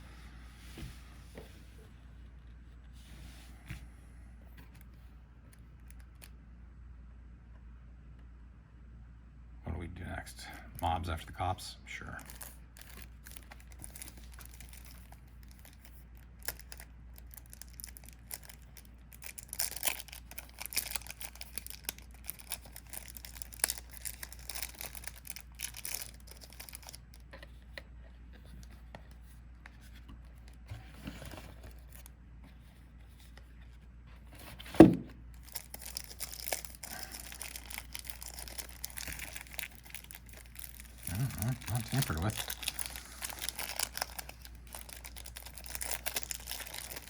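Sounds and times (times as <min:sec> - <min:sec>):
plastic wrap crinkling: 0:12.2 - 0:27.6, 0:35.3 - 0:47.0.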